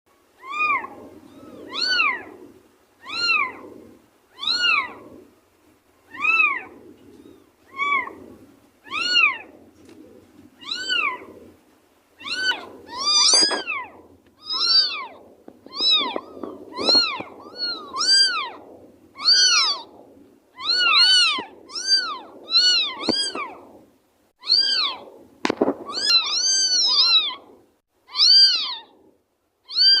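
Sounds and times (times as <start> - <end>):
cat meowing: 0.4 - 2.3, 3.0 - 3.6, 4.4 - 5.0, 6.1 - 6.7, 7.7 - 8.2, 8.9 - 9.5, 10.6 - 11.2, 12.2 - 18.6, 19.2 - 19.9, 20.6 - 23.6, 24.4 - 25.0, 25.9 - 27.5, 28.1 - 28.9, 29.7 - 30.0
kitten meowing: 0.4 - 2.3, 3.0 - 3.6, 4.4 - 5.1, 6.1 - 6.7, 7.7 - 8.2, 8.9 - 9.5, 10.6 - 11.2, 12.2 - 18.6, 19.2 - 19.9, 20.6 - 23.6, 24.4 - 25.0, 25.9 - 27.5, 28.1 - 28.9, 29.7 - 30.0.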